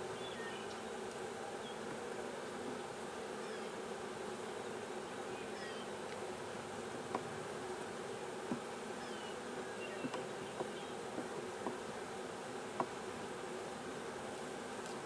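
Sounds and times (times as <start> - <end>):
honey bees buzzing: 0.0 - 15.0.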